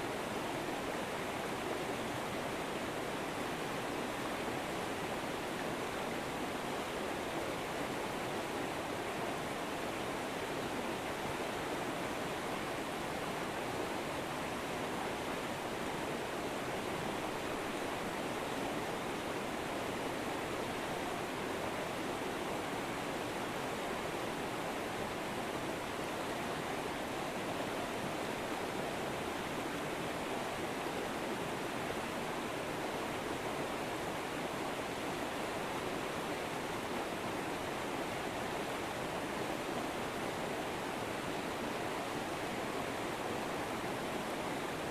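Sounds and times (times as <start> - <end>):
river water flowing over rocks: 0.0 - 44.9.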